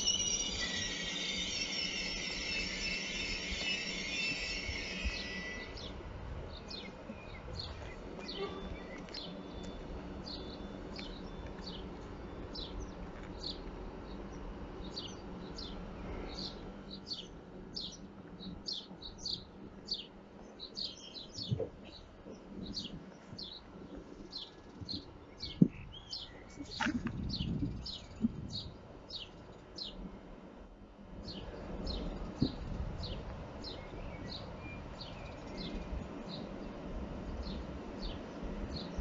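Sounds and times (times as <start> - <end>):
high squeal: 0.0 - 6.0
steady low rumble: 4.6 - 39.0
small birds chirping: 5.1 - 30.0.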